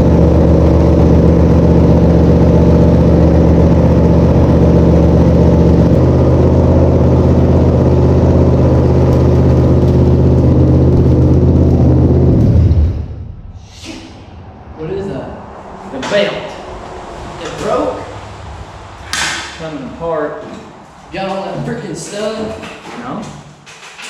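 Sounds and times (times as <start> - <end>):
car engine running: 0.0 - 13.4.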